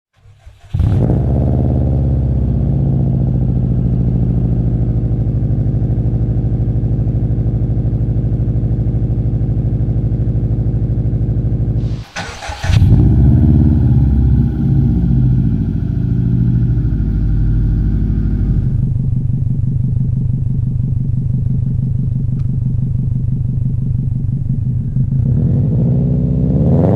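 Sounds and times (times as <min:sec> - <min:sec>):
car engine starting and idling: 0:00.2 - 0:06.9, 0:11.4 - 0:26.9
short burst of noise: 0:11.8 - 0:13.2.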